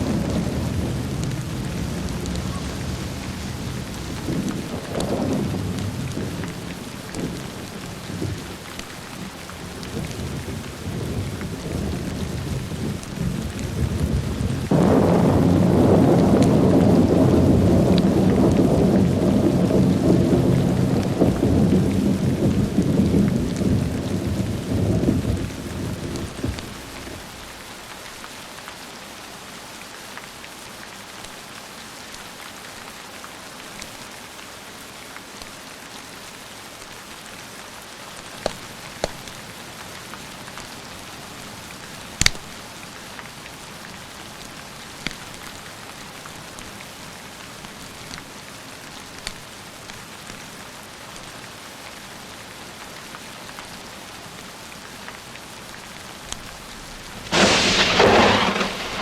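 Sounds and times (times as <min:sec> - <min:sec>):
thunder rumbling: 0:00.0 - 0:27.4, 0:56.6 - 0:59.0
steady rain: 0:00.0 - 0:59.0
fireplace crackling pops: 0:42.2 - 0:42.5, 0:57.2 - 0:59.0.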